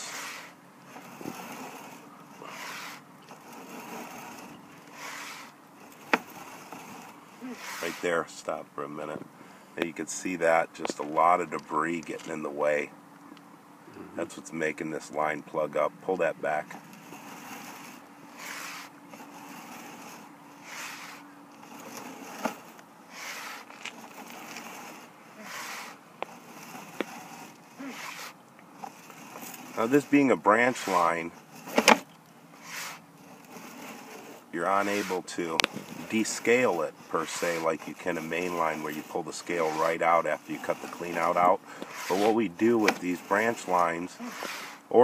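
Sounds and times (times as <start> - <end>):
cable scraping through drain pipe: 0.0 - 9.2, 9.8 - 12.8, 14.7 - 45.0
faint hum: 0.0 - 45.0.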